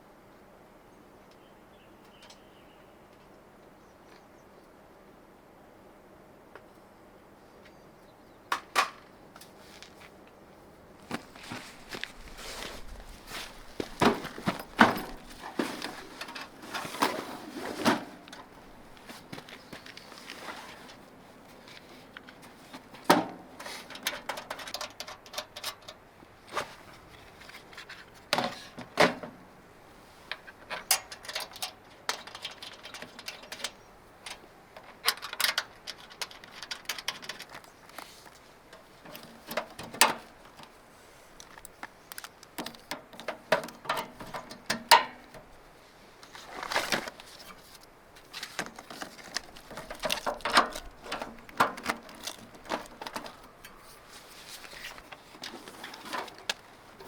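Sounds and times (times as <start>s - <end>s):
clicks and rattles of handling: 11.0s - 29.4s, 30.2s - 45.6s, 46.2s - 57.0s.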